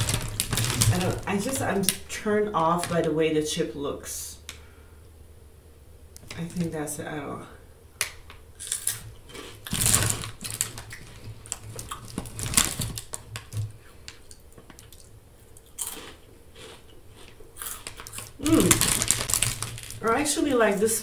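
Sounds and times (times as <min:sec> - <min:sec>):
chips crunched and chewed: 0:00.0 - 0:02.0, 0:08.6 - 0:20.2
chip bag rustling: 0:00.0 - 0:02.1, 0:08.6 - 0:13.7, 0:15.7 - 0:21.0.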